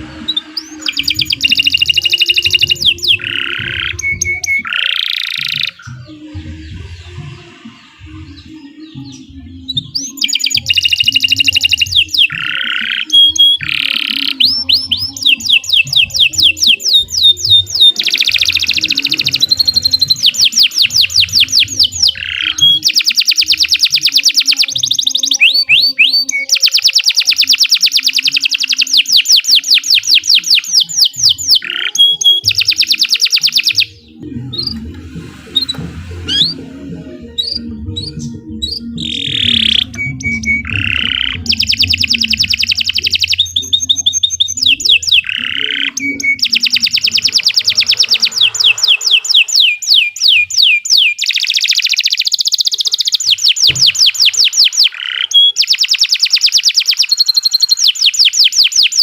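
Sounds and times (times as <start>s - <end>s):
canary singing: 0.0s - 59.0s.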